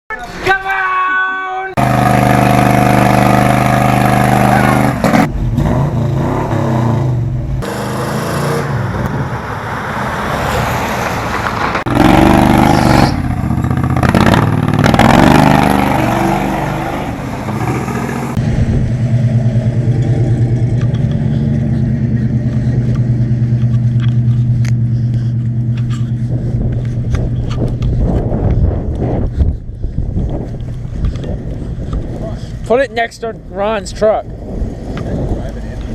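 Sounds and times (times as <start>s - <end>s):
pickup truck engine revving: 1.8s - 27.3s.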